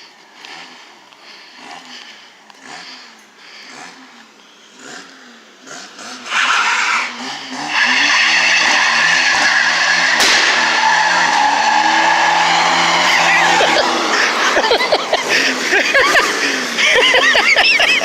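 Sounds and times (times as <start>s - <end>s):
engine revving hard: 0.4s - 18.0s
sharp crack: 9.5s - 14.4s.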